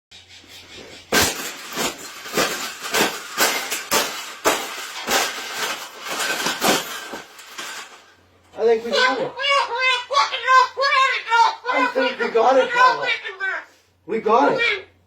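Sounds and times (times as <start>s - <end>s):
bird cage being smashed: 1.1s - 8.1s.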